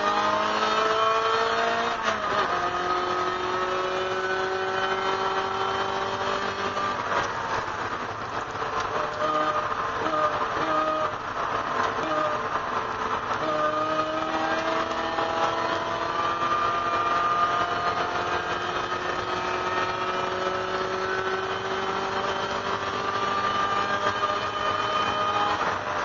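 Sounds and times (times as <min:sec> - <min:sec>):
car engine accelerating: 0:00.0 - 0:26.0
road and wind noise: 0:00.0 - 0:26.0.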